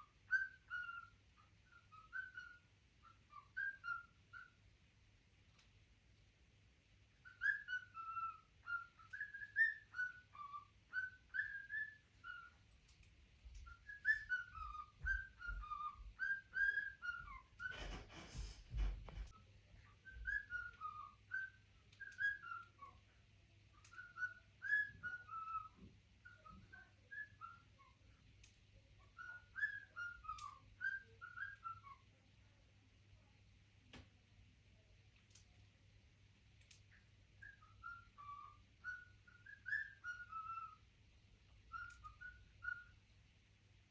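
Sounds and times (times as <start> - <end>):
pet bird whistling: 0.0 - 4.6, 7.2 - 12.6, 13.6 - 17.9, 20.0 - 23.0, 23.7 - 28.0, 29.1 - 32.0, 37.4 - 40.8, 41.6 - 43.0
rustling: 17.3 - 19.4.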